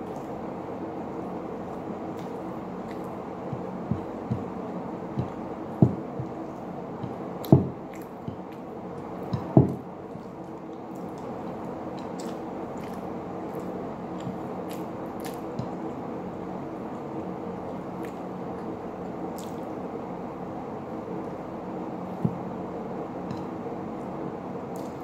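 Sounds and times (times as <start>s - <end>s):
steady low hum: 0.0s - 25.0s
wet chewing and mouth smacking: 2.1s - 15.8s, 19.4s - 19.6s.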